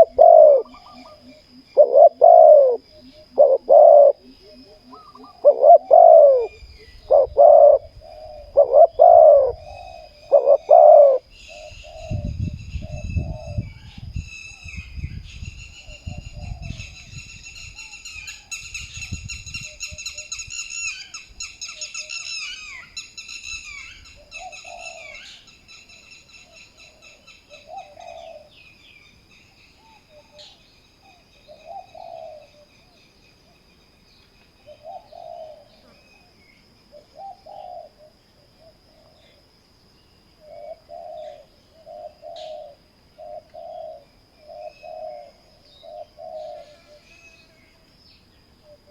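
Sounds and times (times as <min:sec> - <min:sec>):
doves cooing: 0:00.0 - 0:14.0, 0:15.8 - 0:17.2, 0:23.6 - 0:25.5, 0:26.4 - 0:28.7, 0:29.7 - 0:33.6, 0:34.6 - 0:39.5, 0:40.4 - 0:47.8.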